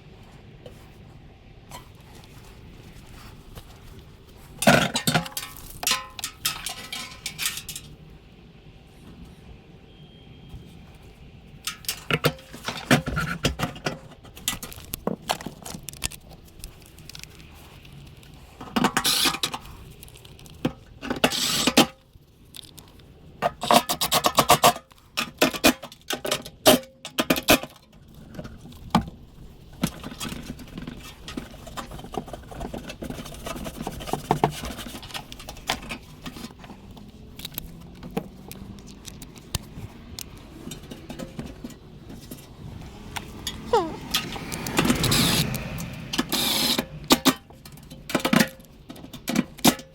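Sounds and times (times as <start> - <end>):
metal tools clinking and scraping: 4.4 - 8.0.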